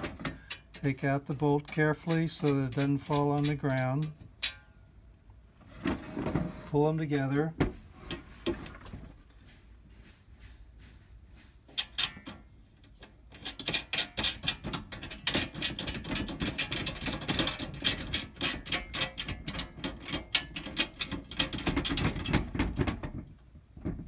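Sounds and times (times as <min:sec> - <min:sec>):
shutters clicking and rattling: 0:00.0 - 0:04.8, 0:11.8 - 0:23.4.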